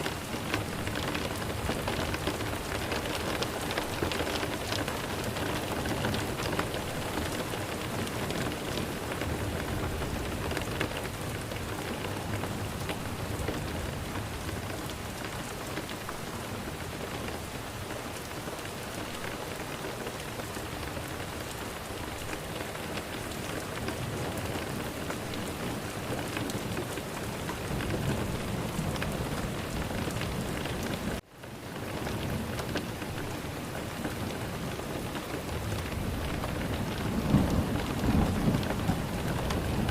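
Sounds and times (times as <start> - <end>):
steady rain: 0.0 - 39.9
thunder rumbles: 34.1 - 39.9.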